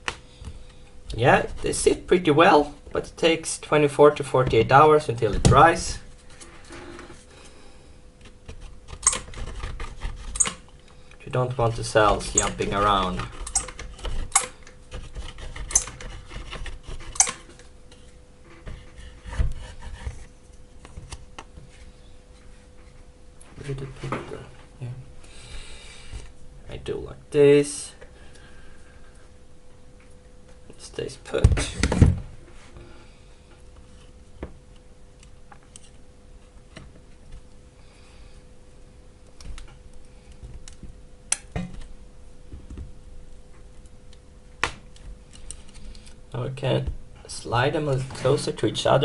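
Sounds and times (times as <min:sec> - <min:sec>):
faint steady hum: 0:00.0 - 0:49.0.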